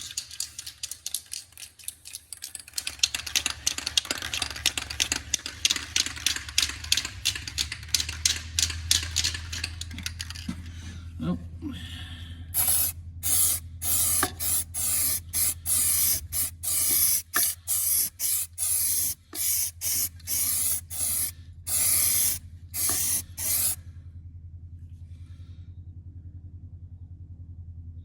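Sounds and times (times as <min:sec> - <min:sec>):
steady low hum: 0:04.5 - 0:28.0
aerosol can spraying: 0:12.6 - 0:23.8.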